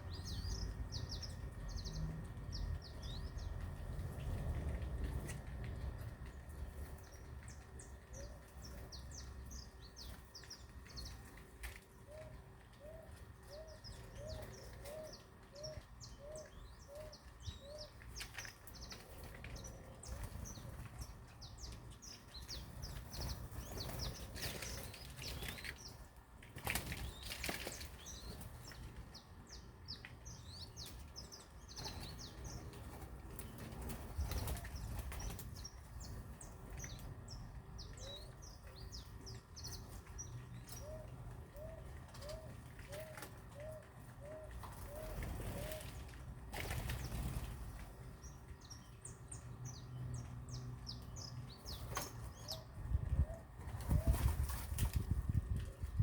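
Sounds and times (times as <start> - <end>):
small birds chirping: 0.0 - 56.0
wings flapping: 26.5 - 28.8, 31.8 - 35.6, 44.5 - 47.9, 53.6 - 55.3.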